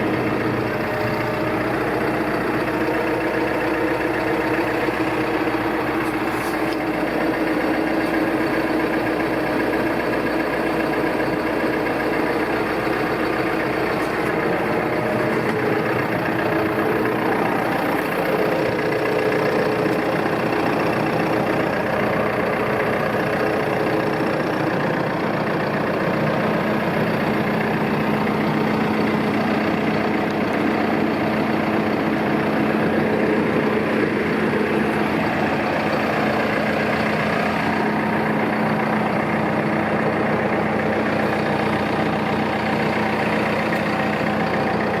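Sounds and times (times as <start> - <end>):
tractor diesel engine idling: 0.0 - 45.0.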